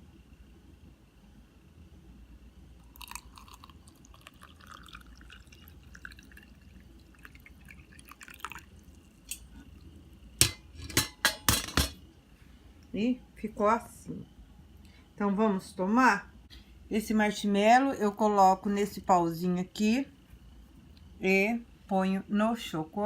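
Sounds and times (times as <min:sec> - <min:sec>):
liquid dripping into mug: 0:02.8 - 0:09.8
crockery clinking: 0:10.4 - 0:12.0.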